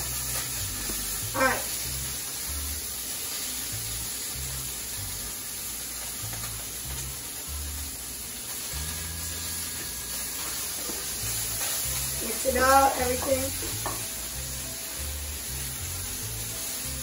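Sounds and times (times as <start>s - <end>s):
fish sizzling in a pan: 0.0s - 17.0s
background music with bass: 11.2s - 17.0s.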